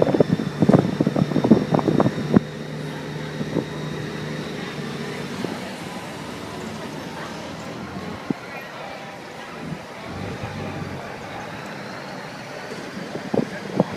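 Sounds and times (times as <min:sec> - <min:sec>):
motorcycle engine running: 0:09.6 - 0:11.6.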